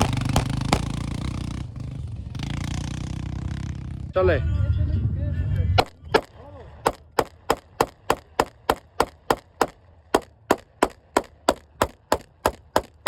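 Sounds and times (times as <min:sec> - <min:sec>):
rapid gunshots: 0:00.0 - 0:01.3, 0:05.8 - 0:13.0
low steady rumble: 0:00.0 - 0:02.4, 0:03.0 - 0:13.0.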